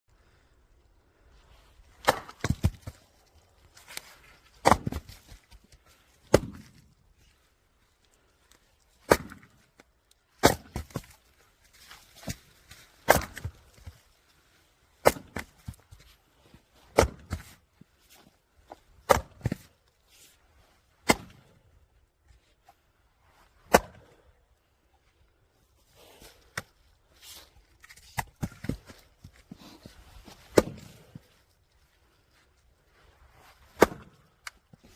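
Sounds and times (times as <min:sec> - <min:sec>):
firewood cracking when split: 0:08.0 - 0:14.0.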